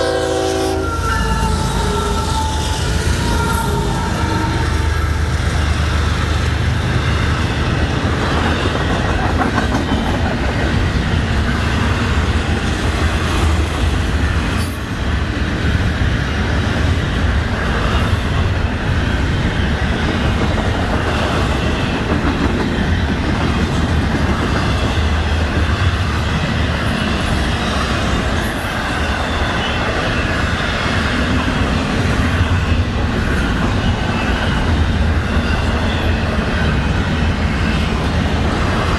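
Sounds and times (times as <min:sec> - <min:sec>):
train cars rolling past: 0:00.0 - 0:38.9
wheels clacking over rail joints: 0:05.2 - 0:29.4.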